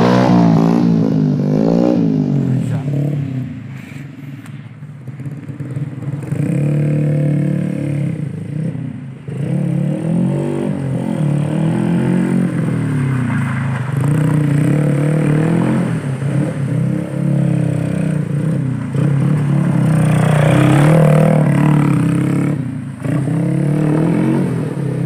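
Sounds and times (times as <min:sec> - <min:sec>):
motorcycle engine revving: 0:00.0 - 0:03.7, 0:05.0 - 0:25.0.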